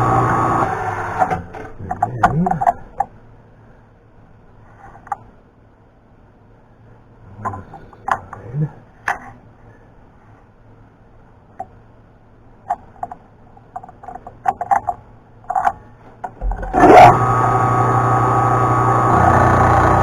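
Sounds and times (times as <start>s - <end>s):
faint low hum: 0.0s - 20.0s
metal clicks and knocks: 12.7s - 16.6s.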